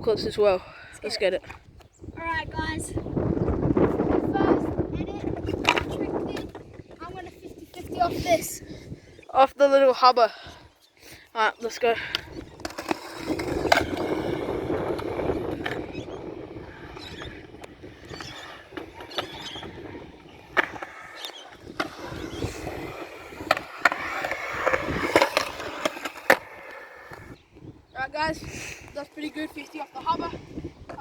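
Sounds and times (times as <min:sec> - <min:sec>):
skateboard wheels rolling on concrete: 0:00.0 - 0:31.0
skateboard popping and landing clacks: 0:05.2 - 0:06.8, 0:12.1 - 0:27.4
metal skateboard trucks grinding: 0:11.7 - 0:27.4.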